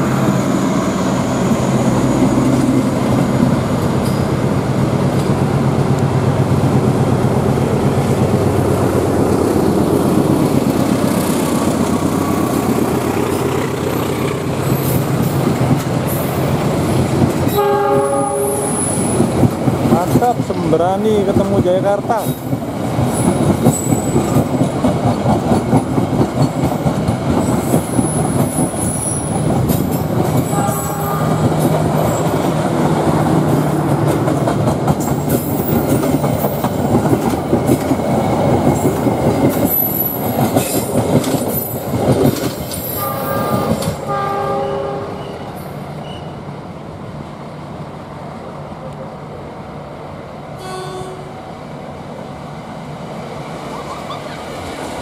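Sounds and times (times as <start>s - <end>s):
train wheels clattering on rails: 1.4s - 44.5s
short train horn: 17.5s - 19.2s, 30.5s - 31.5s, 42.9s - 46.4s, 50.6s - 51.4s.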